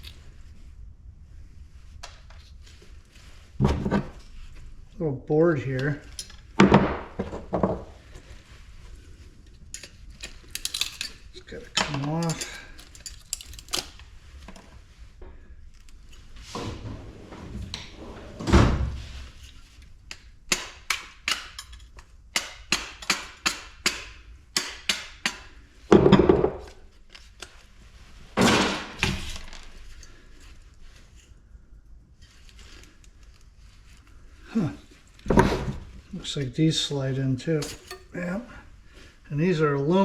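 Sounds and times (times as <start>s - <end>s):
metal parts clicking and knocking: 9.7s - 14.0s, 20.1s - 24.0s, 37.6s - 38.1s.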